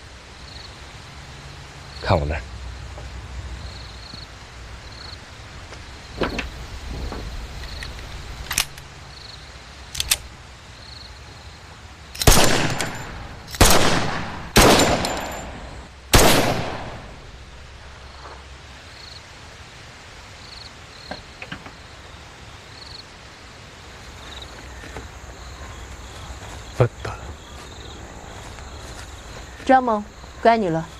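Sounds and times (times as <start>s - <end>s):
light clicks: 9.9s - 10.3s
gunshots with echoing tail: 12.2s - 17.2s.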